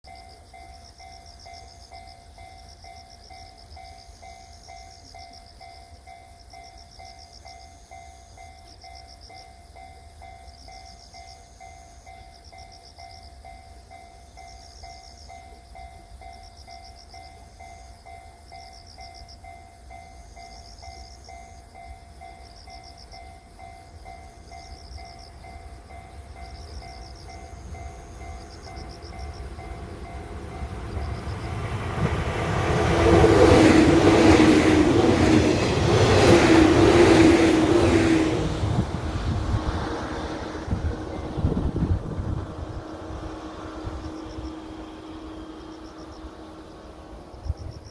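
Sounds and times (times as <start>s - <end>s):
level crossing warning bell: 0.0s - 38.6s
train rumble and rail clatter: 0.0s - 47.9s.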